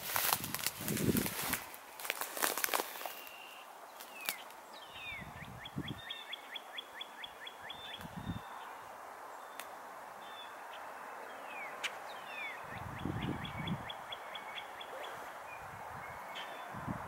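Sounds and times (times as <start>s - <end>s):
steady outdoor hiss: 0.0s - 17.0s
small birds chirping: 0.2s - 16.8s.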